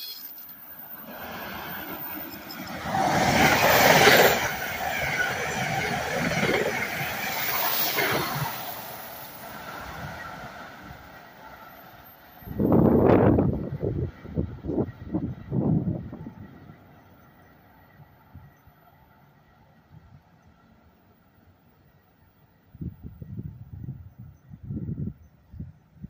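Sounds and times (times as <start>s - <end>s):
passenger train passing at speed: 0.0s - 26.0s.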